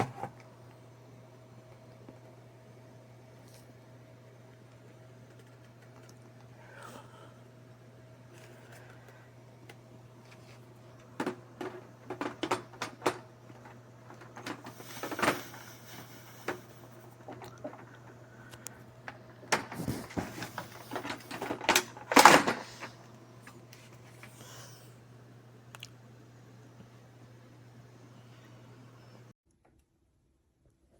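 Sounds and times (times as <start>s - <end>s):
handling clicks and knocks: 11.0s - 15.5s.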